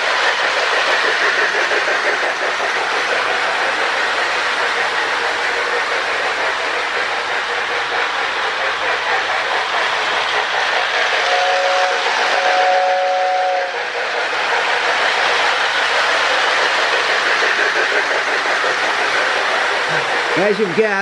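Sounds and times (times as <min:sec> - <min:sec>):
toy trains running on track: 0:00.0 - 0:21.0
toy train whistle blasts: 0:11.2 - 0:13.8.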